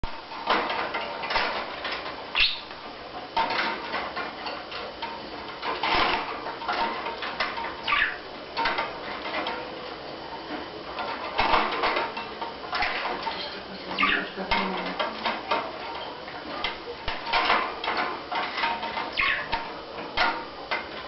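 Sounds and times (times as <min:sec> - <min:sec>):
budgie chirping: 0:19.1 - 0:19.5.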